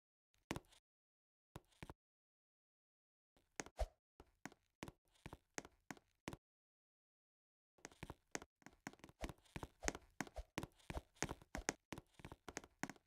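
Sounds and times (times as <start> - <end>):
faint irregular taps and knocks: 7.8 - 13.0.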